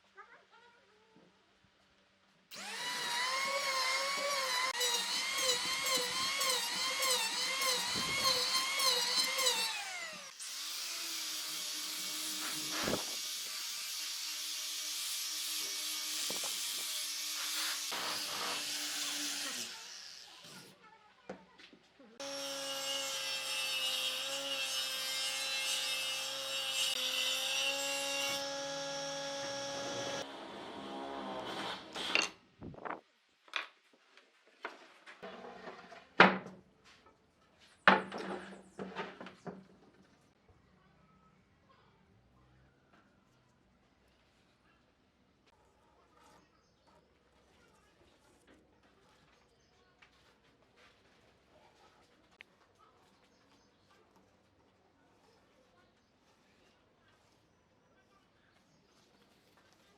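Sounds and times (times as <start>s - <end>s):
power tool motor whine: 2.5s - 10.4s, 28.3s - 32.1s
power tool cutting wood: 2.5s - 20.7s, 22.2s - 32.3s.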